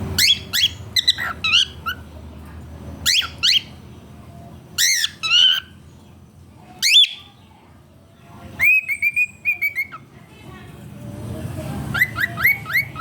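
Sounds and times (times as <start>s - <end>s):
cockatiel chirping calls: 0.2s - 2.1s, 3.0s - 3.8s, 4.8s - 5.8s, 6.8s - 7.3s, 8.6s - 10.0s, 11.9s - 13.0s.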